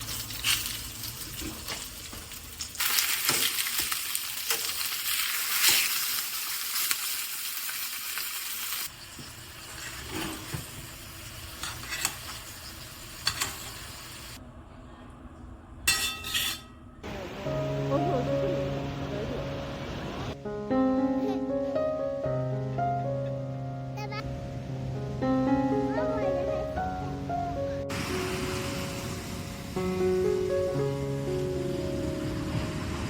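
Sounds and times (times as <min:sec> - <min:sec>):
food sizzling in a frying pan: 0:00.0 - 0:14.4, 0:27.9 - 0:33.0.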